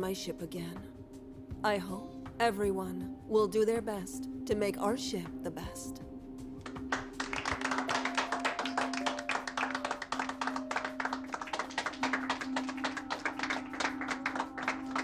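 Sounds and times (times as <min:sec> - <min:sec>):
background music: 0:00.0 - 0:15.0
people clapping: 0:06.6 - 0:15.0.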